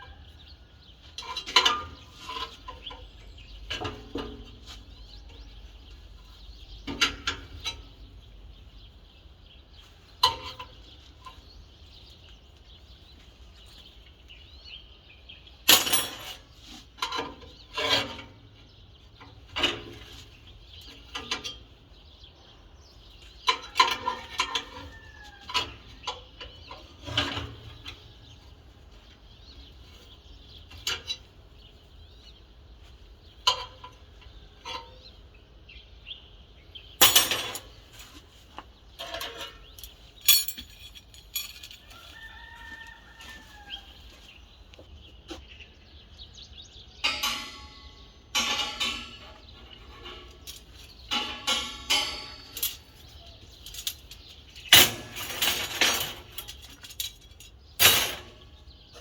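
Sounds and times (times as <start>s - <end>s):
steel pieces knocking and clinking: 15.7s - 16.4s, 37.0s - 38.1s, 39.0s - 42.0s, 47.0s - 58.4s
faint rooster crowing: 23.7s - 25.9s, 41.8s - 44.3s
metal scraping: 47.0s - 53.2s.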